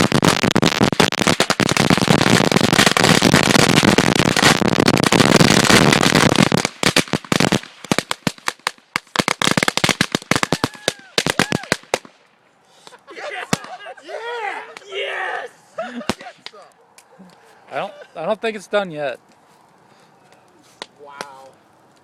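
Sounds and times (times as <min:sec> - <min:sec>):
firecrackers banging: 0:00.0 - 0:12.2, 0:13.4 - 0:13.9, 0:15.9 - 0:16.6.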